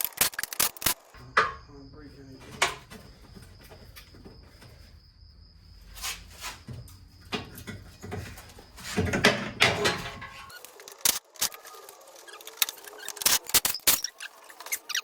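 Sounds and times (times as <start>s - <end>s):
tools and car parts clicking and knocking: 2.4s - 4.7s, 6.8s - 15.0s.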